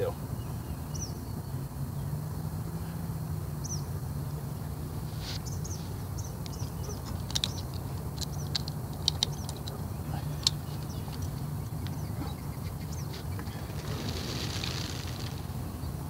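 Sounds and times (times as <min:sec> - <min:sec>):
small birds chirping: 0:00.0 - 0:16.0
steady low hum: 0:00.0 - 0:16.0
sharp chirps and clicks: 0:05.3 - 0:16.0.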